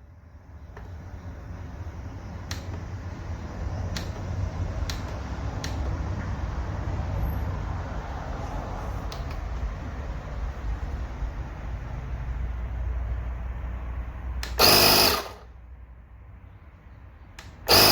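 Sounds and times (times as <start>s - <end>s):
sharp clicks: 2.5s - 2.8s, 3.9s - 5.9s, 14.4s - 15.4s, 17.4s - 17.9s
air compressor humming: 14.4s - 15.6s, 17.5s - 17.9s.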